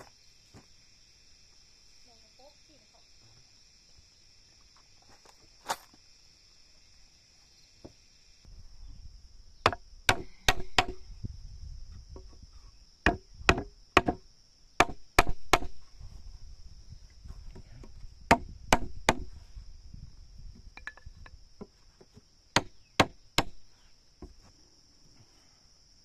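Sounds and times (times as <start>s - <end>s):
wood chopping blows: 9.7s - 11.0s, 17.8s - 19.3s, 22.6s - 23.6s.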